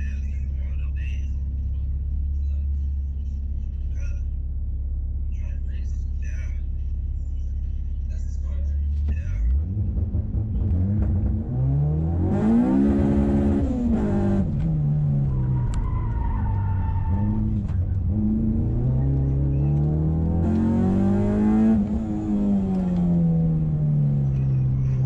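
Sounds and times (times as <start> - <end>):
car engine revving hard: 9.4 - 15.8, 17.2 - 25.0.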